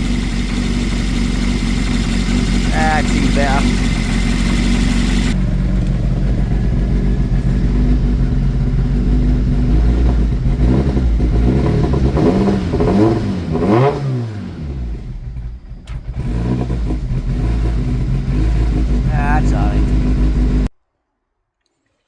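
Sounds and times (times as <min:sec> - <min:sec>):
car engine idling and revving: 0:00.0 - 0:20.7.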